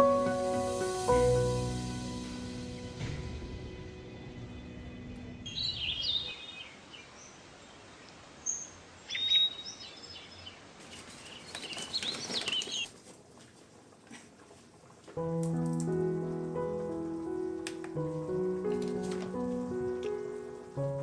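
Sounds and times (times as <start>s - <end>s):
background music: 0.0s - 5.5s, 15.2s - 21.0s
outdoor background noise: 0.0s - 21.0s
small birds chirping: 5.1s - 12.9s.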